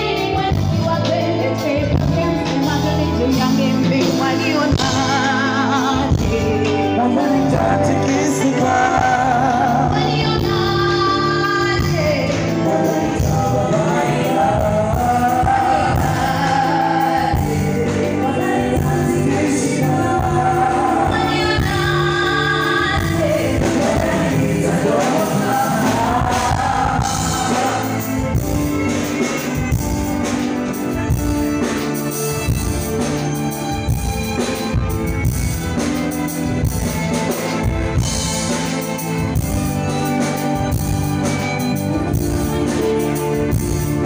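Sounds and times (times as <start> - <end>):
people singing: 0.0 - 29.8
live band playing: 0.0 - 44.0.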